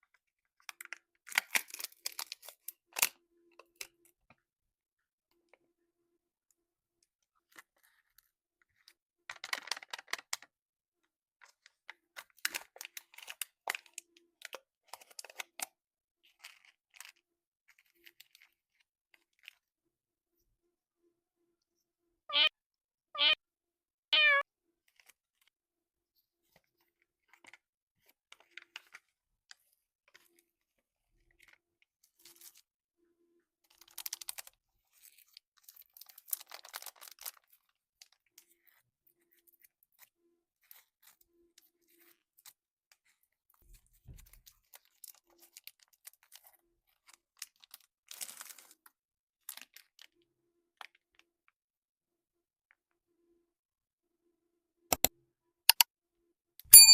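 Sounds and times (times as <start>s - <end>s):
candy wrapper crinkling: 0.2s - 3.2s, 8.8s - 10.5s, 11.4s - 15.7s, 16.3s - 19.6s, 33.7s - 38.2s, 44.6s - 48.9s
cat meowing: 22.3s - 22.5s, 23.2s - 23.4s, 24.2s - 24.4s.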